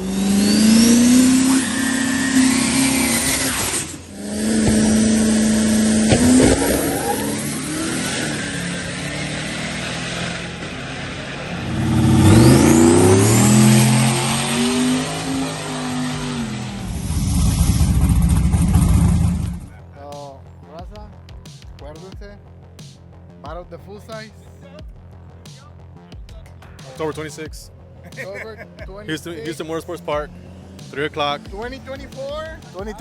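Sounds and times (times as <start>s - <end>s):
truck engines revving: 0.0s - 19.8s, 24.3s - 33.0s.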